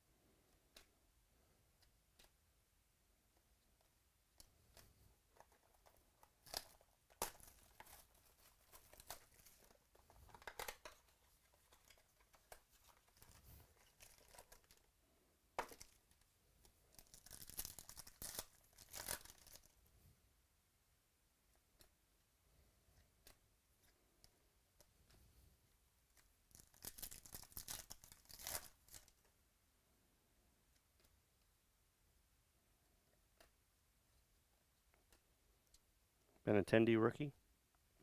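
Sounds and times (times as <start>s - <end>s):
cards being handled: 4.4s - 14.9s, 15.6s - 19.8s, 26.1s - 29.2s
foil wrapper crinkling: 10.3s - 14.9s, 16.9s - 19.8s, 26.5s - 29.1s
foil wrapper tearing: 26.6s - 29.1s.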